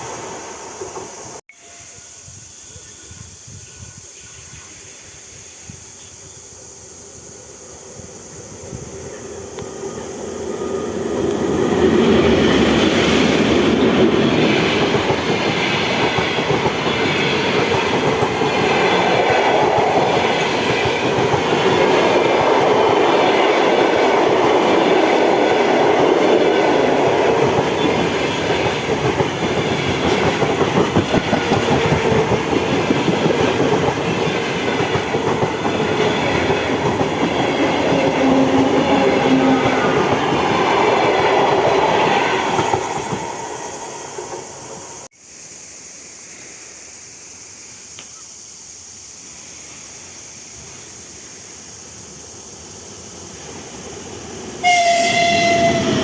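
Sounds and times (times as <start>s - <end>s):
train wheels clattering on rails: 10.9s - 44.6s.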